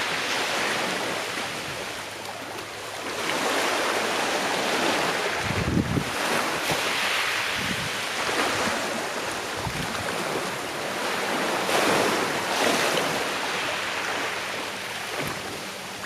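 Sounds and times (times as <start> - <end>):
sea waves washing onto shore: 0.0 - 16.0.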